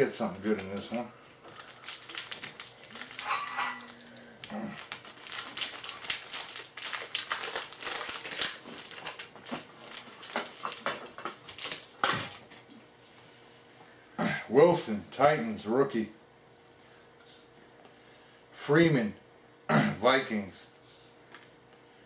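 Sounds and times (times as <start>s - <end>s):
cards being handled: 0.2s - 11.9s
foil wrapper crinkling and tearing: 0.2s - 12.4s.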